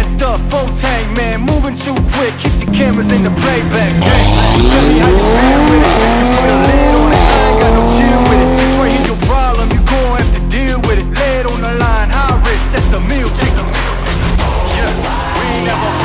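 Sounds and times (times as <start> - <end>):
background music: 0.0 - 16.0
car exhaust accelerating hard: 1.9 - 9.4.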